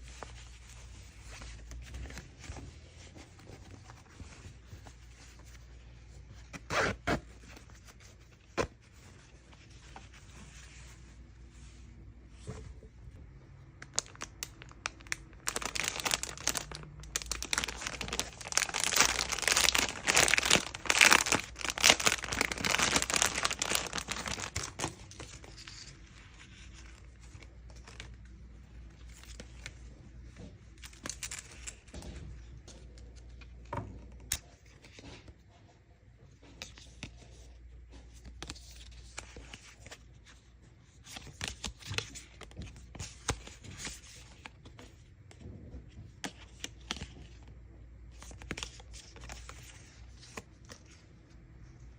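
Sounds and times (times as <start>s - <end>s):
plastic packaging crinkling: 13.8s - 25.9s.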